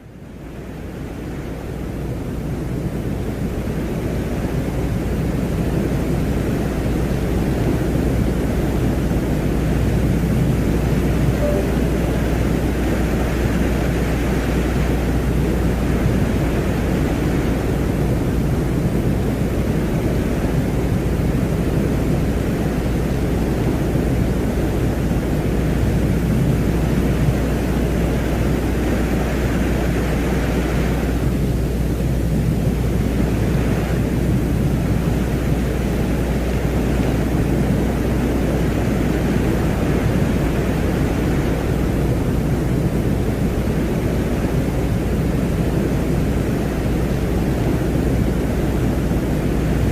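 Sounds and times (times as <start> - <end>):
low hum: 11.3 - 12.8.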